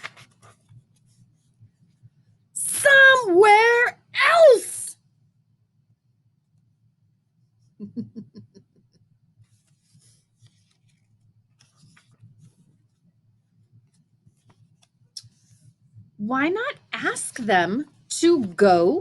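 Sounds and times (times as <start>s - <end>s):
paper pages rustling: 0.0s - 1.5s, 9.4s - 13.0s.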